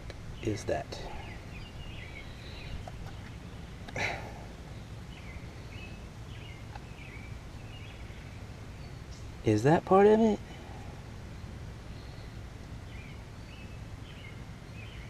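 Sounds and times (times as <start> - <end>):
low background rumble: 0.0 - 15.0
faint bird chirps: 0.4 - 9.7.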